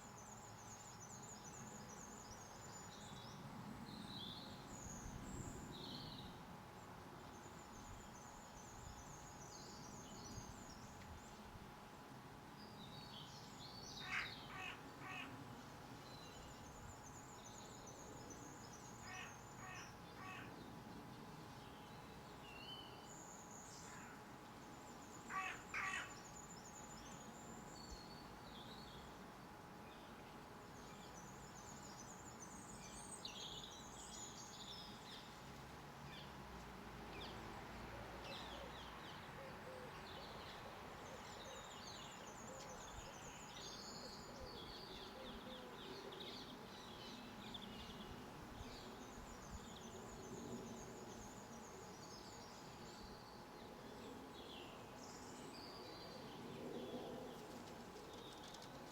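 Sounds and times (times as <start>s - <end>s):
birds chirping and trilling: 25.1s - 29.1s
harsh bird calls: 25.3s - 26.2s.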